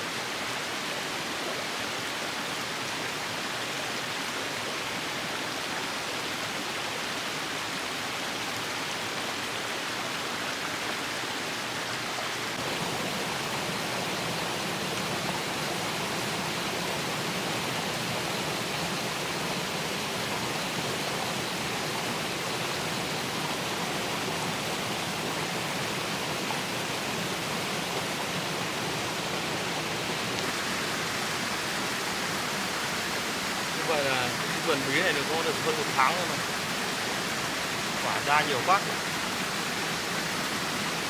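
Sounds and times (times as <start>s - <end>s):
running water rushing: 0.0s - 41.0s.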